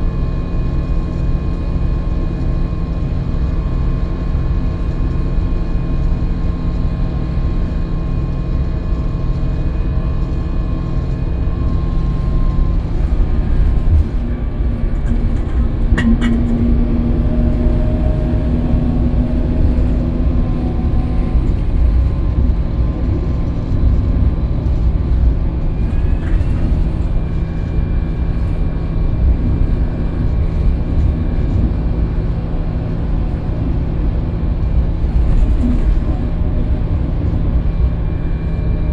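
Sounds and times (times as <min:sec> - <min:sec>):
bus engine drone: 0:00.0 - 0:38.9
low road rumble: 0:00.0 - 0:38.9
steady hum: 0:09.1 - 0:38.9.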